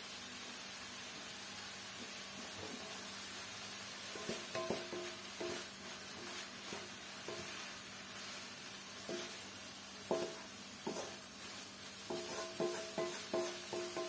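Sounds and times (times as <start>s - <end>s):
food sizzling in a wok: 0.0s - 14.0s
wooden spatula scraping a wok: 4.0s - 14.0s
spatula knocking against pan: 4.2s - 5.6s, 10.0s - 11.2s, 12.0s - 14.0s.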